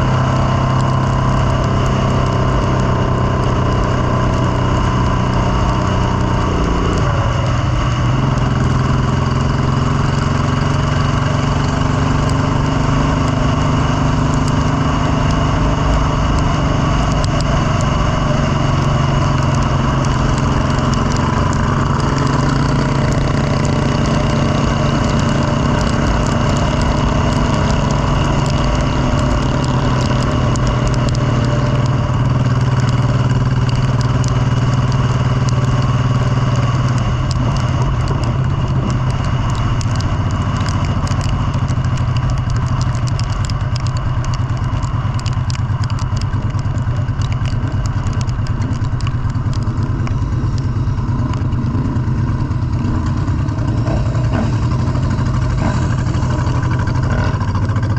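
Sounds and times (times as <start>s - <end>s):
motorcycle engine running: 0.0s - 57.9s
clicks and rattles: 36.8s - 57.9s.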